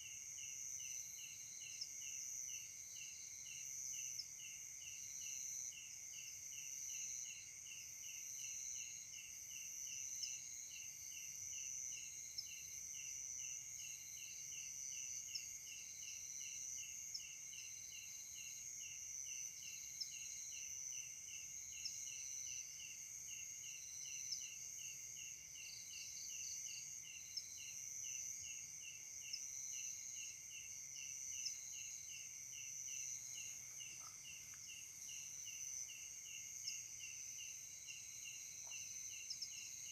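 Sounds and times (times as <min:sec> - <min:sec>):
cricket chirping: 0:00.0 - 0:39.9
insects trilling: 0:13.8 - 0:39.9.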